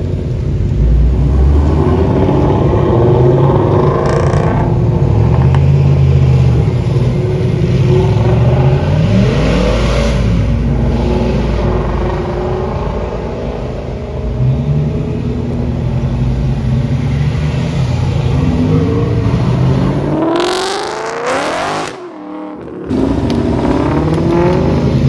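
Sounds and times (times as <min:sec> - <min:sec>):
car engine running and revving: 0:00.0 - 0:25.0.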